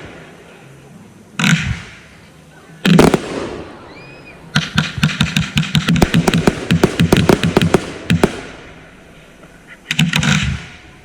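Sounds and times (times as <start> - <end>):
fireworks bangs: 2.8 - 11.0.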